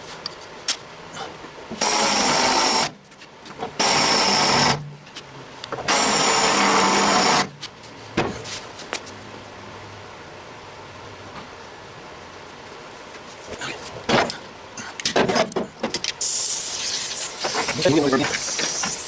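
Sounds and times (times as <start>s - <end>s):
air chisel cutting sheet metal: 16.2s - 19.0s.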